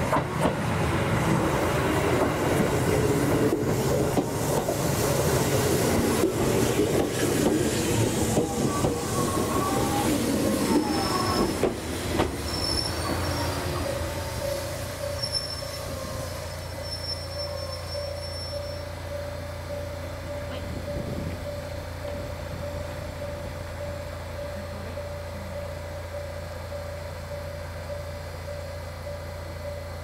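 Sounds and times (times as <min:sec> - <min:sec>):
train running hum: 0:00.0 - 0:30.0
train steady whine: 0:00.0 - 0:30.0
train wheel squeals: 0:06.7 - 0:24.6.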